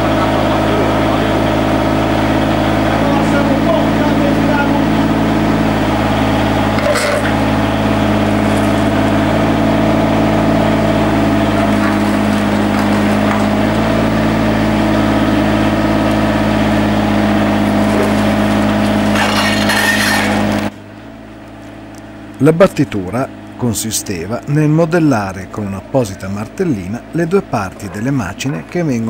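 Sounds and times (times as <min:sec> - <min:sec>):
excavator diesel engine running: 0:00.0 - 0:29.0
scraping noise: 0:19.1 - 0:20.7.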